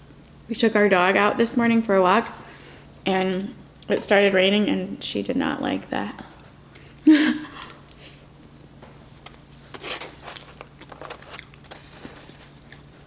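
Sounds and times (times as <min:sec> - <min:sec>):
faint steady hum: 0:00.0 - 0:13.0
food container clicks and rustles: 0:09.2 - 0:13.0.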